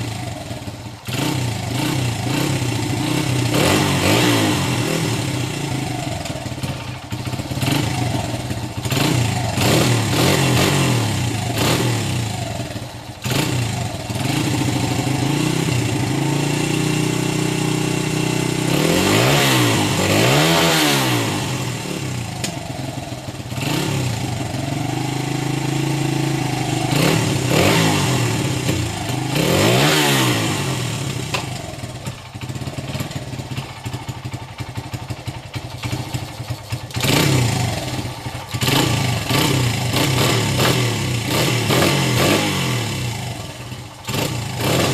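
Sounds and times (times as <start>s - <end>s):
motorbike engine idling and revving: 0.0s - 44.9s.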